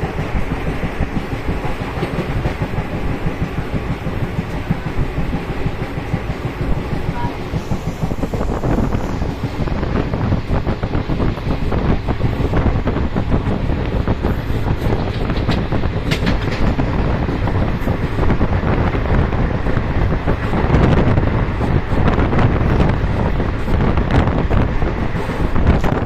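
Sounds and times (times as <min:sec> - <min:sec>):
train rumbling: 0:00.0 - 0:26.0
wind on microphone: 0:00.0 - 0:26.0
wheel and carriage clicks and rattles: 0:13.5 - 0:18.4.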